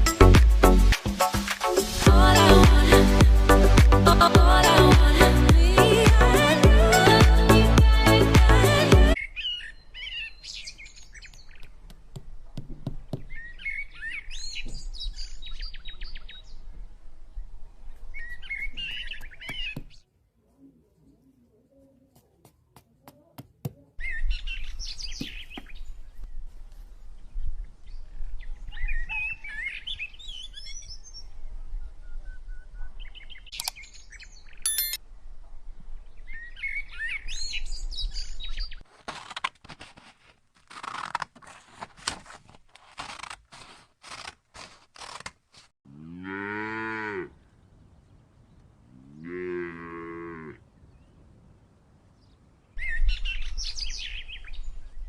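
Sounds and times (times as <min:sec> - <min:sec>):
bird chirps: 0:09.2 - 0:11.7, 0:13.2 - 0:16.7, 0:18.1 - 0:20.0, 0:24.0 - 0:26.3
cow mooing: 0:45.9 - 0:47.4, 0:48.9 - 0:50.6.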